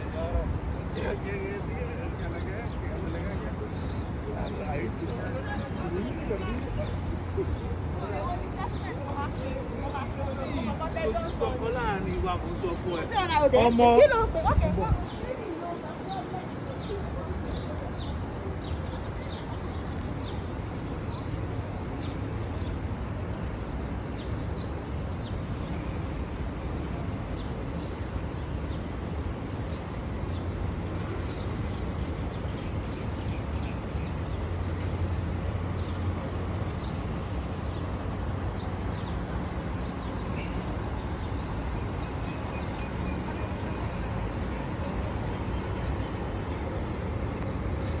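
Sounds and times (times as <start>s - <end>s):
small birds chirping: 27.2s - 48.0s.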